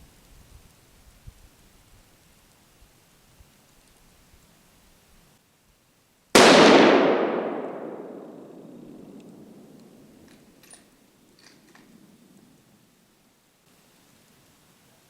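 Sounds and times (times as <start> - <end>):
rifle shot: 6.4 - 10.3.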